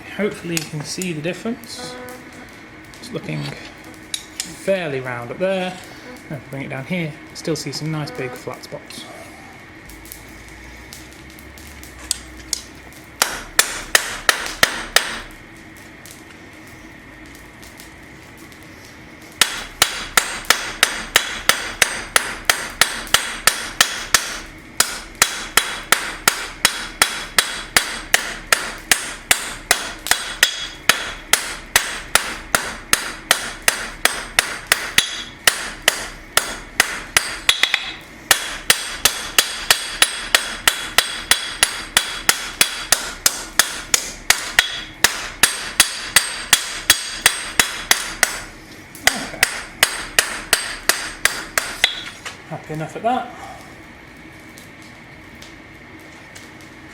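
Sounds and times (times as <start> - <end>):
hammer striking steel on anvil: 13.2 - 15.3, 19.4 - 52.2.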